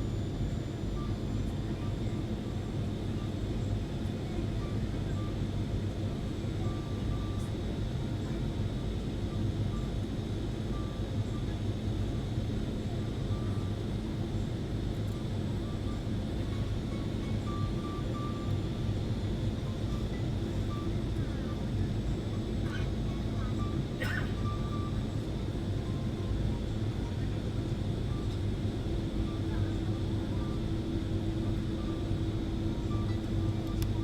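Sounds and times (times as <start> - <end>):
engines and airflow rumbling: 11.6 - 34.0.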